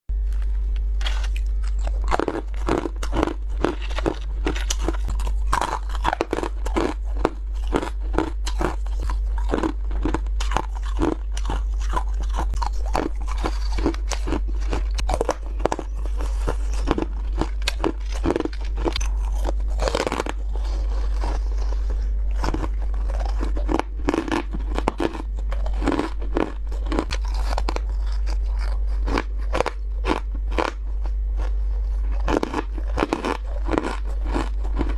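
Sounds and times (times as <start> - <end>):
steady low hum: 0.1 - 34.9
ice being chewed: 0.2 - 34.9.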